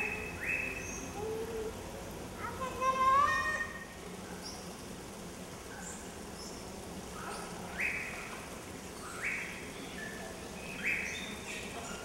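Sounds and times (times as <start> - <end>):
faint high bird chirps: 0.0 - 1.6, 7.2 - 12.0.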